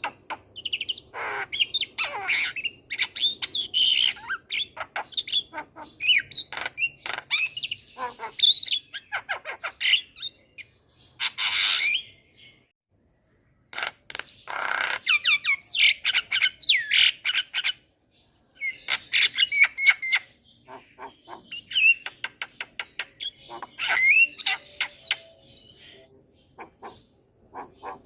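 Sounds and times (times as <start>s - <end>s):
bird singing clicks and whistles: 21.7s - 23.4s.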